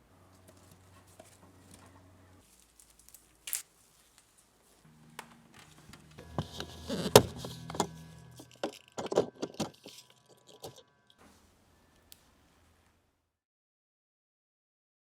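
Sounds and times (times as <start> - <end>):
hard parts clicking and rattling: 5.9 - 11.2.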